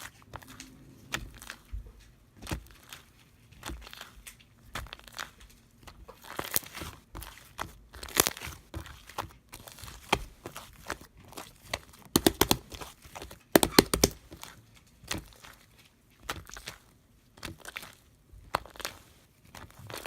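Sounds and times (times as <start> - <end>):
slime squished by hand: 2.4 - 20.0
snapping pops: 12.2 - 12.6, 13.6 - 14.2.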